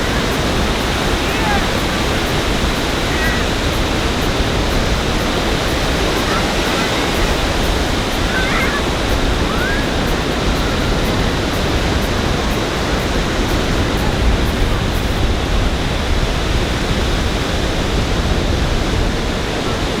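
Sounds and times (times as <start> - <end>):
ocean surf breaking: 0.0 - 20.0
wind buffeting rumble: 0.0 - 20.0.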